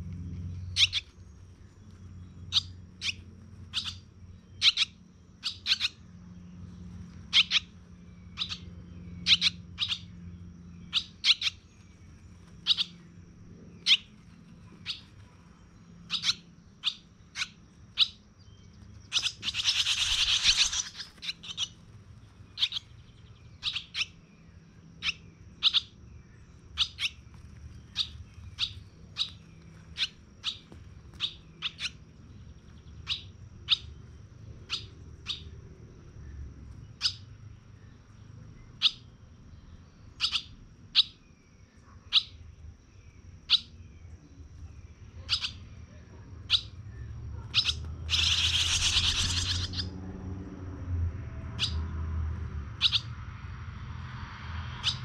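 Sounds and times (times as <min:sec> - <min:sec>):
baby birds chirping: 0:00.5 - 0:50.2, 0:51.5 - 0:51.9, 0:52.7 - 0:53.2, 0:54.8 - 0:55.0
harsh burst of bird calling: 0:19.0 - 0:24.1, 0:47.5 - 0:49.9.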